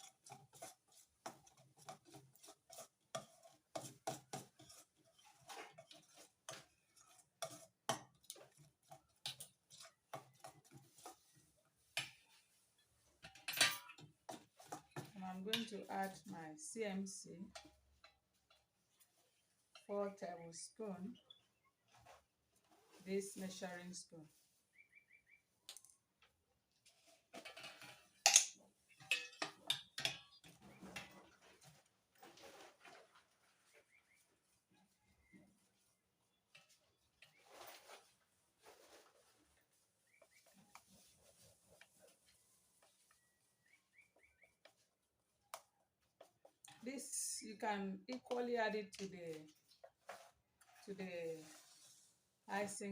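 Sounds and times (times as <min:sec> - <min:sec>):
spoon clicking and scraping bowl: 0:00.0 - 0:12.5, 0:27.4 - 0:30.6
spoon stirring in a bowl: 0:00.0 - 0:21.4, 0:27.0 - 0:31.7.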